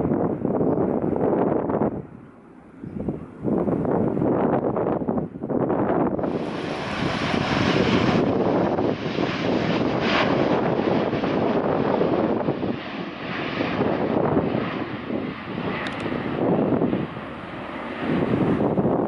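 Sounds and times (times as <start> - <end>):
jet engines roaring: 0.0 - 19.0
wind buffeting microphone: 0.0 - 19.0.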